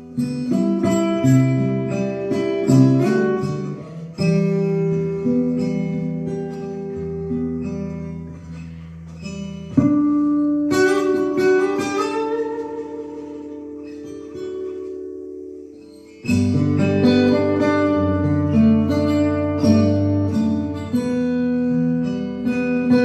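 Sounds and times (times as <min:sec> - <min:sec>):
acoustic guitar playing: 0:00.0 - 0:23.0.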